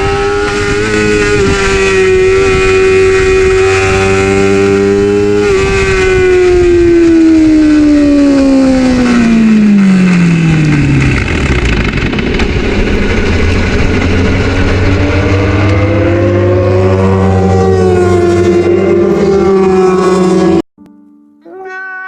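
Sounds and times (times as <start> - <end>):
motorcycle racing engine: 0.0 - 20.7.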